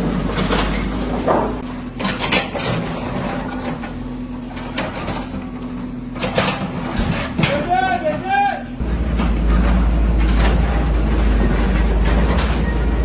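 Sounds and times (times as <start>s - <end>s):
sharp knocks and clanks: 0.0s - 4.0s
machinery humming: 8.0s - 13.0s.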